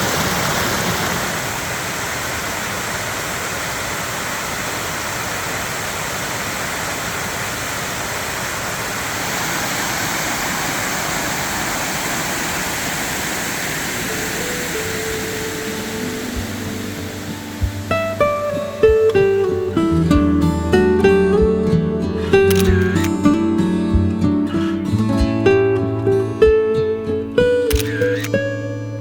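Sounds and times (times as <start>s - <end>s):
water rushing over rocks: 0.0s - 19.5s
plucked guitar music: 15.3s - 29.0s.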